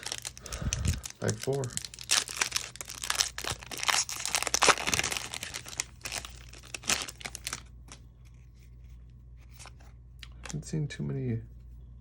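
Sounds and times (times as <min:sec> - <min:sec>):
plastic wrapper tearing and crinkling: 0:00.0 - 0:08.0.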